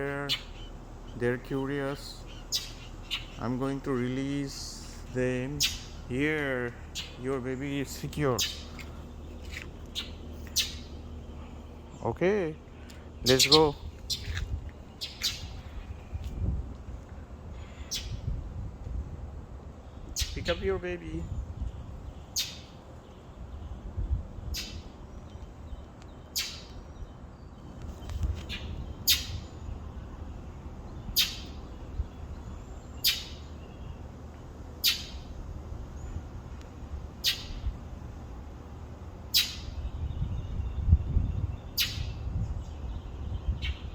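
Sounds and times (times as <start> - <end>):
bird high-pitched call: 0.1 - 1.3, 2.0 - 3.5, 4.7 - 6.0, 6.9 - 7.2, 8.3 - 11.5, 12.9 - 16.0, 17.6 - 18.3, 20.0 - 20.6, 21.2 - 23.8, 24.5 - 25.4, 26.2 - 27.2, 27.9 - 30.1, 30.9 - 34.0, 34.8 - 35.4, 37.2 - 37.7, 39.3 - 43.9.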